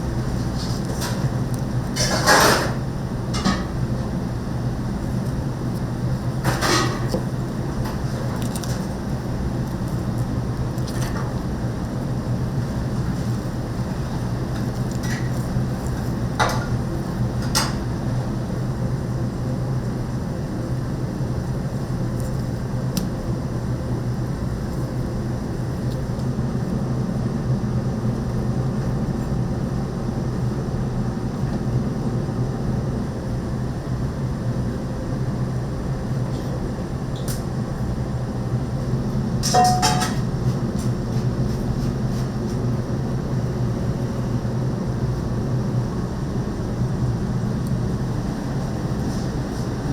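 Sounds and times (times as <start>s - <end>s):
steady low hum: 0.0s - 49.9s
kitchenware clinking: 39.5s - 40.2s.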